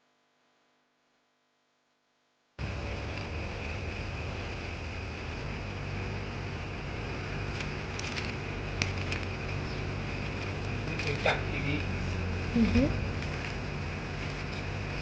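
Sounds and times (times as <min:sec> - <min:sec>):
background hiss: 0:01.9 - 0:15.0
low hum: 0:02.6 - 0:15.0.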